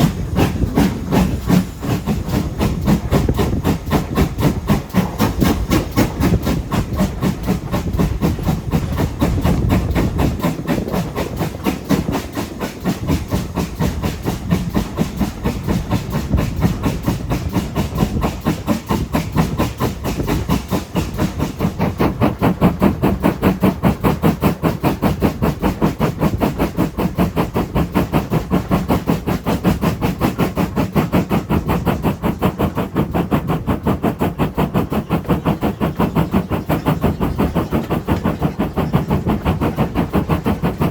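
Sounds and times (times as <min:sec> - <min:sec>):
steam train chugging: 0:00.0 - 0:40.9.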